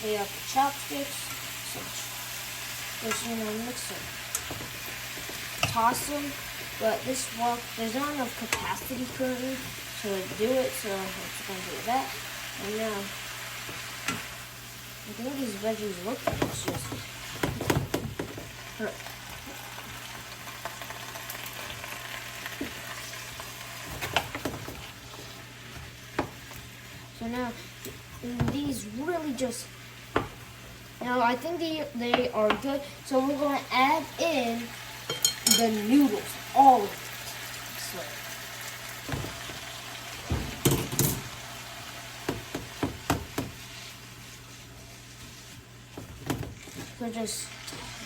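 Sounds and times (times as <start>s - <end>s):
vegetables sizzling in a wok: 0.0s - 48.0s
knocks and clatter against wok: 16.2s - 18.6s, 23.8s - 24.8s, 40.2s - 41.3s, 42.2s - 43.6s, 45.9s - 47.0s.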